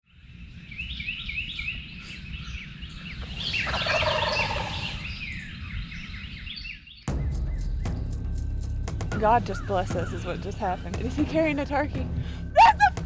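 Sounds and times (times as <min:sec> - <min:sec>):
songbirds chirping: 0:00.1 - 0:13.0
wild turkey gobbling: 0:03.1 - 0:05.2.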